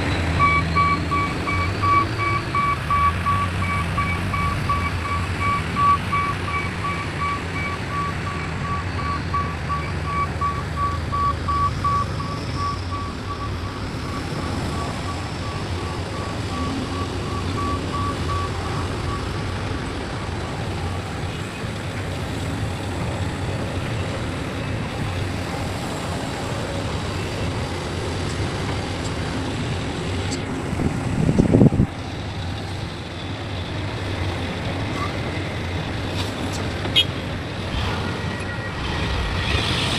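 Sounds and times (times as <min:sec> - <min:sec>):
heavy diesel machinery running: 0:00.0 - 0:39.9
backup alarm beeping: 0:00.4 - 0:19.4.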